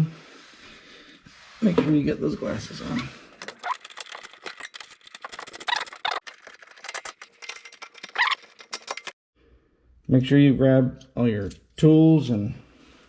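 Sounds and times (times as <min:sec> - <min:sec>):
hand tools clicking and tapping: 0:03.4 - 0:09.2.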